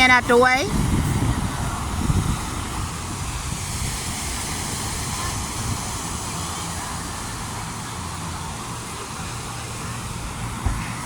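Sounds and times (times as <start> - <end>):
ocean surf washing ashore: 0.0 - 11.0
low thump: 10.6 - 10.9.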